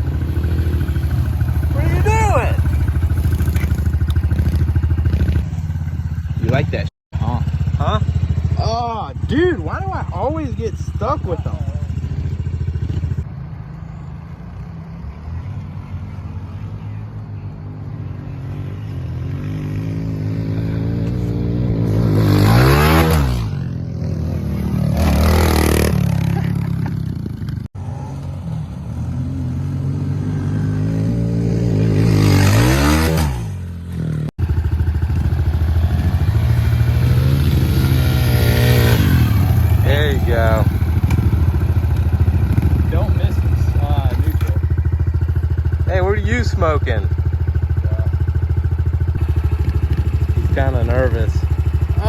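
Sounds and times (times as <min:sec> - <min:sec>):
motorcycle engine idling: 0:00.0 - 0:14.7, 0:33.6 - 0:52.0
dirt bikes racing past: 0:00.0 - 0:52.0.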